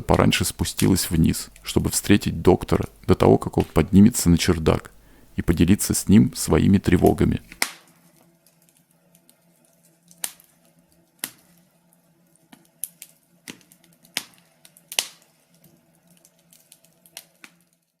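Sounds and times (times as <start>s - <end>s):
faint low hum: 0.0s - 7.6s
fire crackling: 0.0s - 7.8s, 12.5s - 17.7s.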